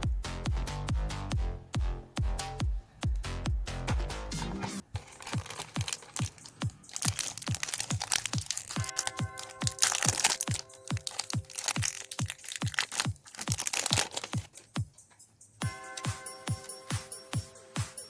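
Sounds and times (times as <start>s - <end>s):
electronic music with kick drum: 0.0s - 4.6s
chocolate wrappers crinkling: 4.9s - 15.1s.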